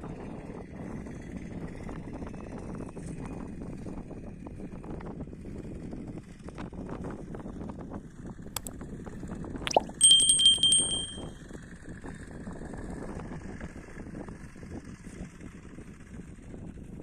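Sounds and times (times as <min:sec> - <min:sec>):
small bell trill: 0:09.7 - 0:11.2.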